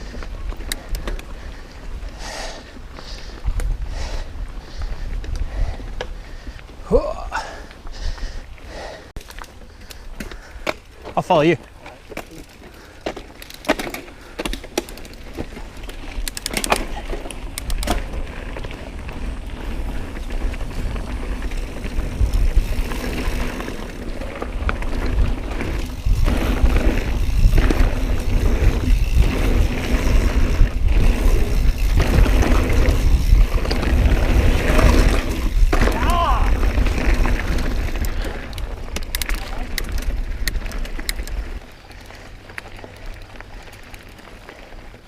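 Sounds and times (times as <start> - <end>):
bike rattling: 0.0 - 45.0
bike tyres rolling on dirt: 0.0 - 45.0
sharp clicks: 16.2 - 18.1, 38.0 - 41.4
wind on microphone: 17.6 - 39.0.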